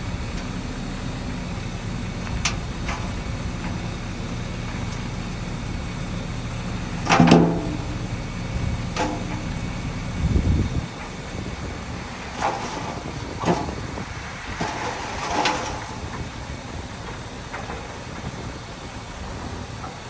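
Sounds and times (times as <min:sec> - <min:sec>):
diesel machinery rumble: 0:00.0 - 0:20.0
metal clanks and scrapes: 0:07.0 - 0:08.0, 0:09.0 - 0:09.6, 0:12.3 - 0:13.8, 0:14.5 - 0:16.2.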